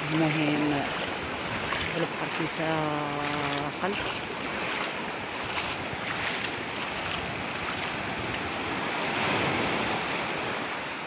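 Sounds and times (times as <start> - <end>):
sea waves breaking on shore: 0.0 - 11.0.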